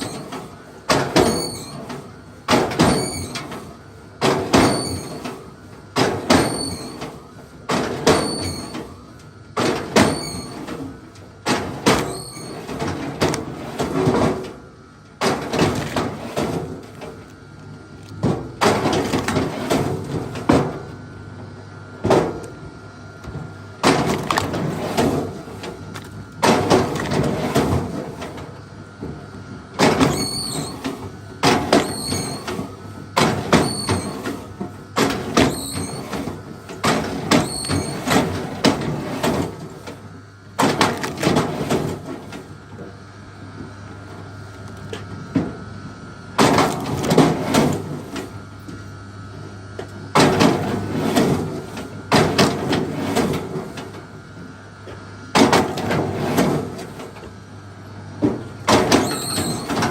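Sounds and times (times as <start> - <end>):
short high squeak: 59.0 - 59.7.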